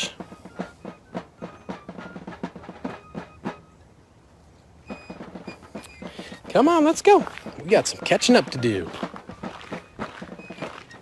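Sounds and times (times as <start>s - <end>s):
footsteps on gravel: 5.7s - 11.0s.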